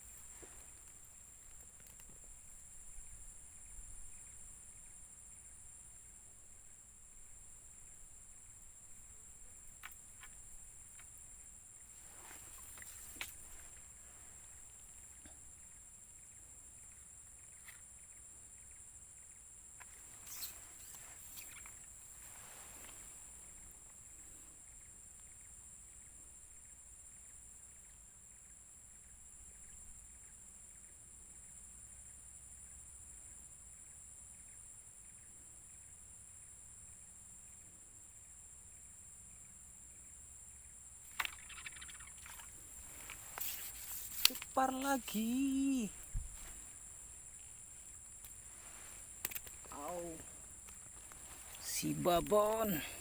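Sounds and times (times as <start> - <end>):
high-pitched insect drone: 20.2 - 22.9, 41.1 - 46.8
rustling and clicking of handling: 42.6 - 45.3, 48.0 - 52.7.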